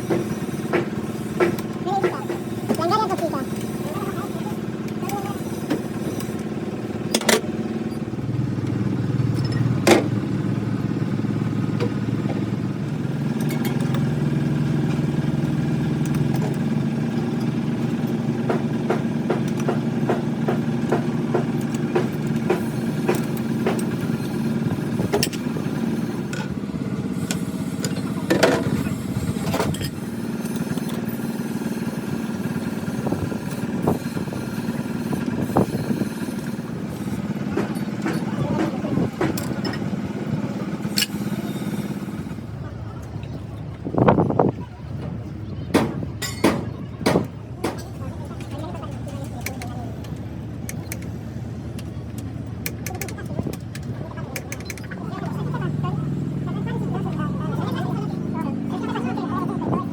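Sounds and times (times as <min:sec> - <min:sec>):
low machine hum: 0:00.0 - 0:59.9
metal clicks and knocks: 0:51.8 - 0:55.0.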